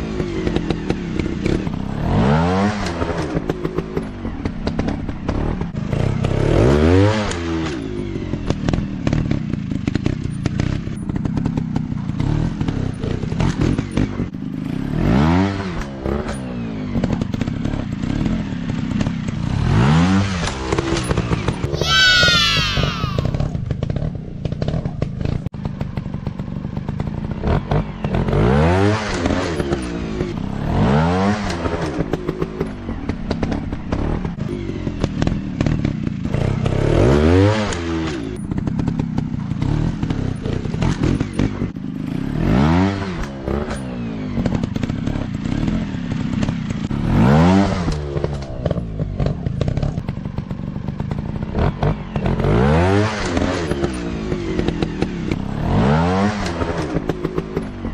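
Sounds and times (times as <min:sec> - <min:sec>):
dirt bike engines revving: 0:19.0 - 0:23.5.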